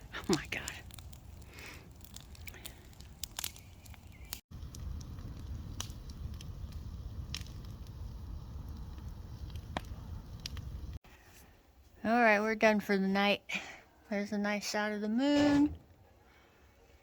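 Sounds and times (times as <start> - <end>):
low rumble of fire: 0.0 - 12.4
bonfire crackling and popping: 0.0 - 12.7.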